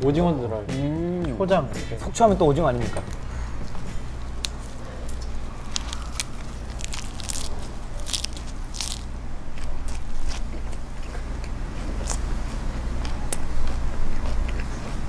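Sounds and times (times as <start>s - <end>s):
crunchy chewing close to microphone: 3.6s - 15.0s.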